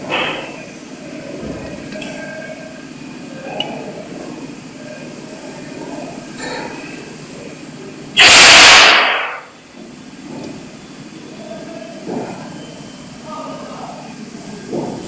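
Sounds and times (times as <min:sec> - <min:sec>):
loud hiss: 0:08.2 - 0:09.5.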